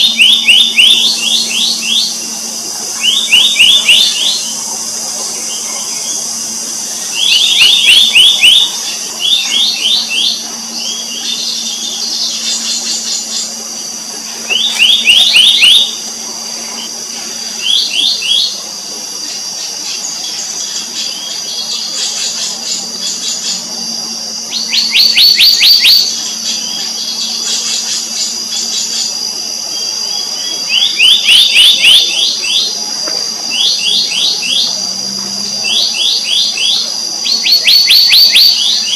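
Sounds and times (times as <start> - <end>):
bird calling sharp notes: 0.0 - 13.6, 14.5 - 17.0, 30.6 - 32.7
high-pitched drone: 0.0 - 38.9.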